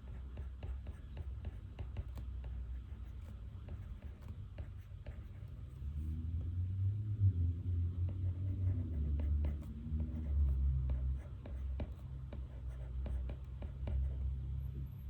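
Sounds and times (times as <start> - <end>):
pen writing on paper: 0.0 - 5.7, 8.1 - 14.3.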